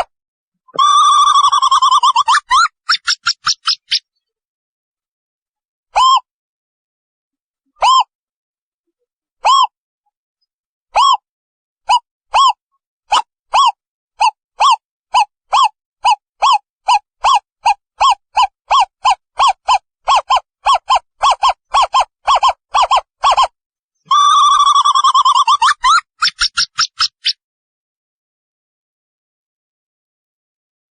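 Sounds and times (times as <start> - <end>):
long wavering owl call: 24.1 - 26.0.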